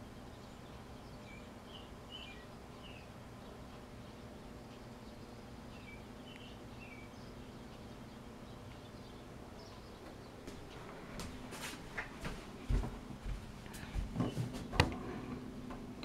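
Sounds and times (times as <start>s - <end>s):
faint bird chirps: 0.0s - 10.4s
low background hum: 0.0s - 16.0s.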